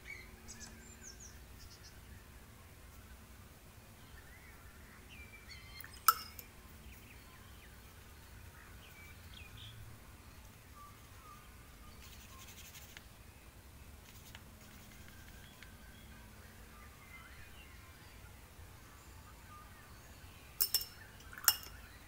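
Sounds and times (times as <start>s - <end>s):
bird chirps: 0.0s - 2.2s, 4.0s - 12.9s.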